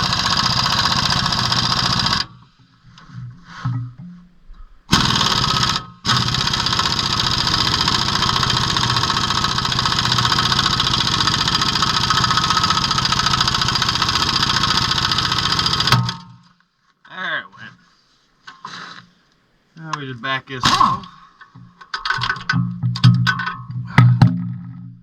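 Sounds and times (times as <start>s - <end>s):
pneumatic air tool hammering: 0.0s - 2.4s, 4.9s - 16.5s, 20.6s - 21.1s.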